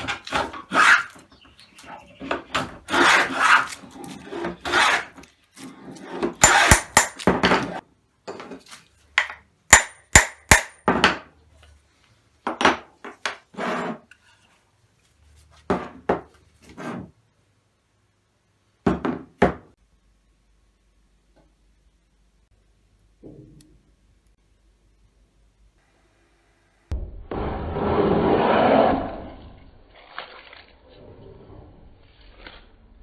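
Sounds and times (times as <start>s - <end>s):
plane scraping wood: 0.0s - 7.0s, 13.5s - 14.4s, 16.6s - 17.1s
sharp ringing metal taps: 9.2s - 10.9s.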